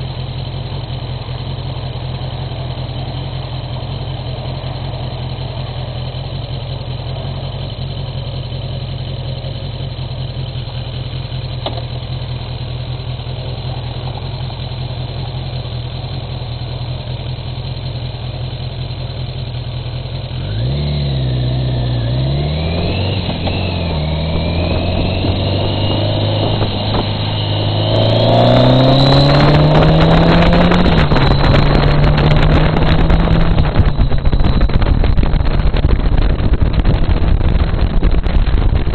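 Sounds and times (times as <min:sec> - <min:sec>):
motorcycle engine idling and revving: 0:00.0 - 0:38.9
wind buffeting microphone: 0:22.8 - 0:38.9.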